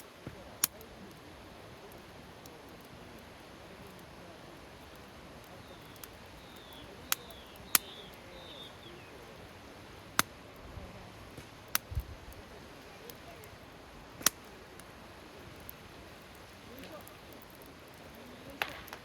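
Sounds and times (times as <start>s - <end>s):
campfire crackling and popping: 0.0s - 19.0s
small bird chirping: 5.5s - 9.4s.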